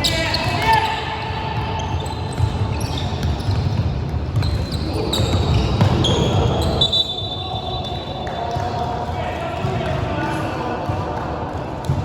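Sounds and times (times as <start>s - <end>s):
sneaker squeaks: 0.0s - 8.9s
players' voices: 0.0s - 12.0s
basketball bouncing on floor: 3.2s - 6.7s.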